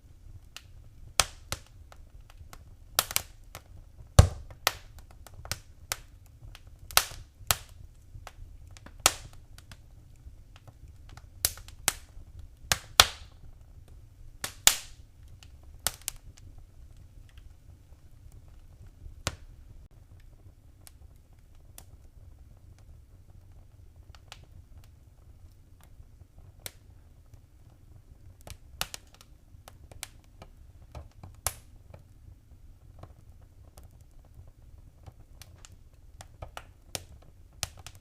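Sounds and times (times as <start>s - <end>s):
fire pops and snaps: 0.0s - 38.0s
low fire rumble: 0.0s - 38.0s.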